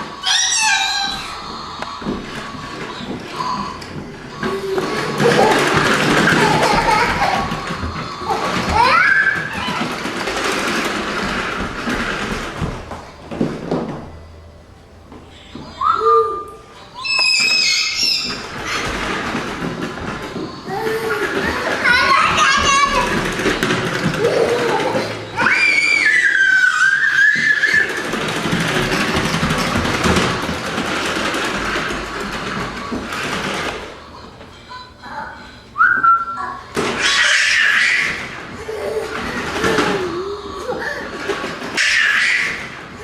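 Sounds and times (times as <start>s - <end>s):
vacuum cleaner running: 0.0s - 15.6s, 18.2s - 34.4s
high-pitched squeal: 15.3s - 30.5s.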